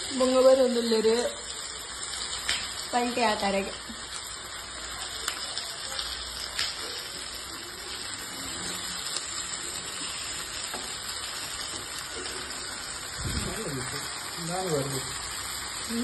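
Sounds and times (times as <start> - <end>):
food sizzling in pan: 0.0 - 16.0.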